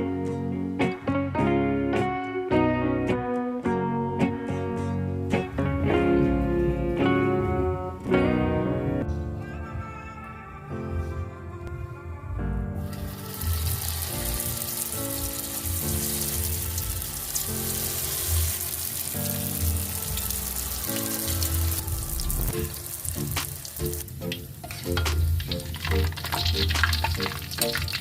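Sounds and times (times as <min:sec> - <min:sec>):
hot oil sizzling: 0:12.8 - 0:28.0.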